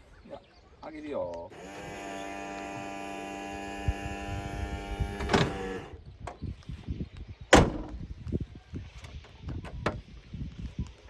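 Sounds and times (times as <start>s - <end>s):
small electric motor humming: 1.6s - 6.0s.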